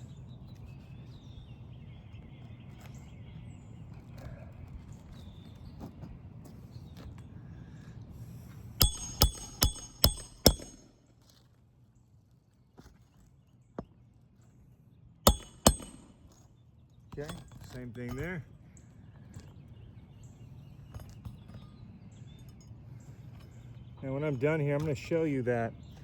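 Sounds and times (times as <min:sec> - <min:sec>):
low background hum: 0:00.0 - 0:26.0
hammer blows on metal: 0:08.8 - 0:11.0, 0:15.3 - 0:16.3.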